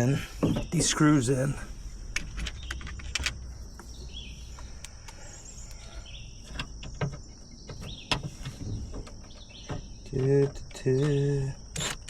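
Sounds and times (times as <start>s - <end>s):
high insect drone: 0.0s - 12.0s
bird chirps: 2.4s - 11.5s
light clicks and knocks: 6.4s - 12.0s.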